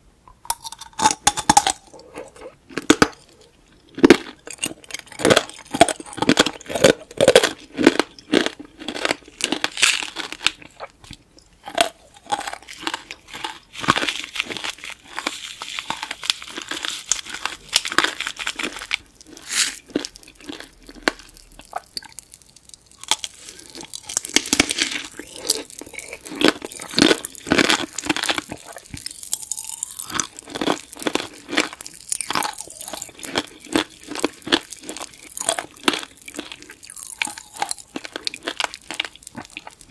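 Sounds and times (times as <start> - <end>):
crunching candied fruit: 0.4 - 39.9
chewing: 0.5 - 39.9.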